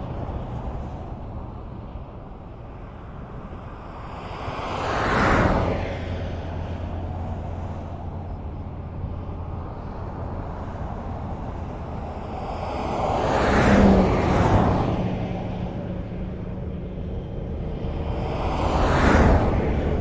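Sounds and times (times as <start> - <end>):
highway traffic rumble: 0.0 - 20.0
vehicle passing close by: 4.1 - 20.0.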